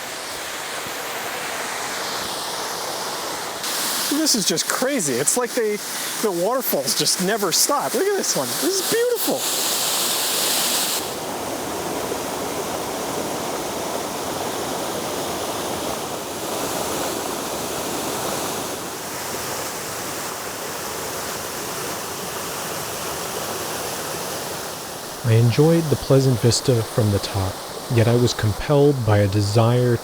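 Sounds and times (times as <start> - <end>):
waterfall rushing: 0.0 - 17.6, 24.0 - 30.0.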